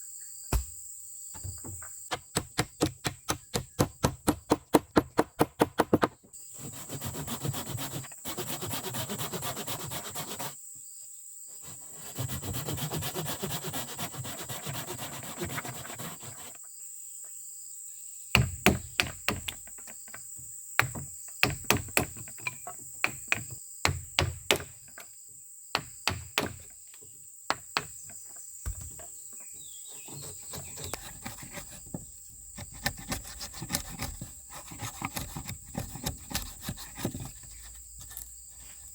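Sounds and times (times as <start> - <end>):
sharp knocks on wood: 0.5 - 0.8, 1.4 - 6.2, 18.4 - 20.2, 20.8 - 25.0, 25.8 - 26.7, 27.5 - 29.1
rough scraping: 28.7 - 38.9.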